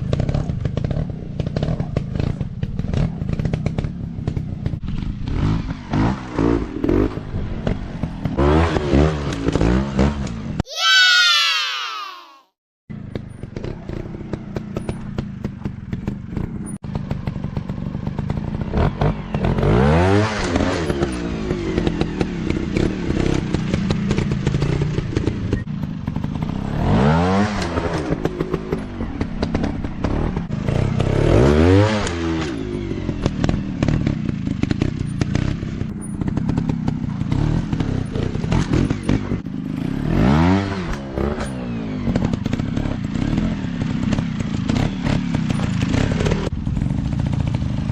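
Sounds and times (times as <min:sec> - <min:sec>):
dirt bike engine revving: 0:04.8 - 0:10.3, 0:18.6 - 0:47.9.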